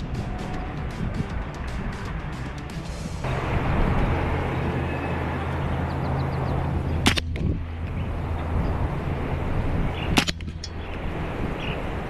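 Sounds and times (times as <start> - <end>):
air rifle shots: 7.0 - 7.4.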